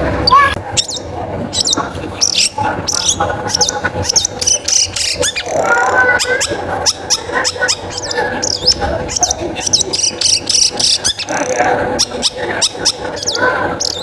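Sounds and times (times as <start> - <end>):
bird singing with chattering notes: 0.2 - 14.0.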